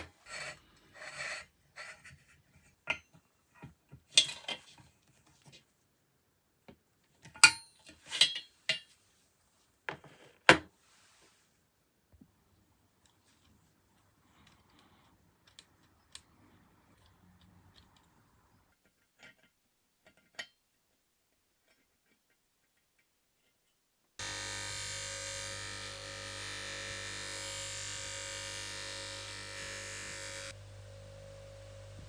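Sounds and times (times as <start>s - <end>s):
machine hum with hiss: 24.2s - 32.0s.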